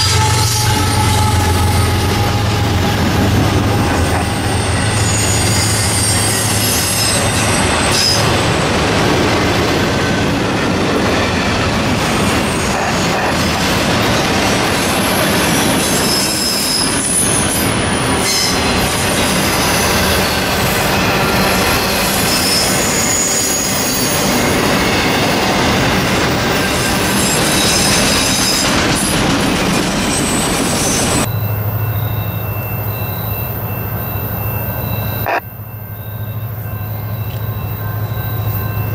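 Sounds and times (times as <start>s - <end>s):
high-pitched wheel squeal: 0.0s - 8.3s, 15.7s - 24.4s, 30.1s - 38.9s
steel wheels rumbling on rail: 0.0s - 38.9s.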